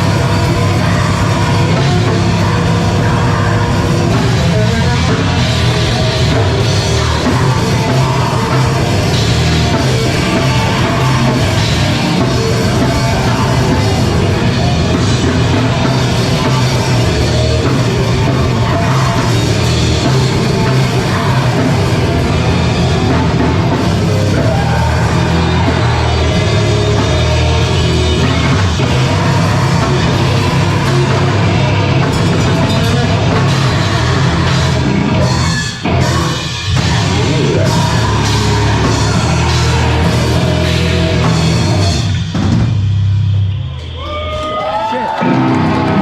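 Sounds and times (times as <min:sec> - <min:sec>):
live band playing heavy rock: 0:00.0 - 0:46.0.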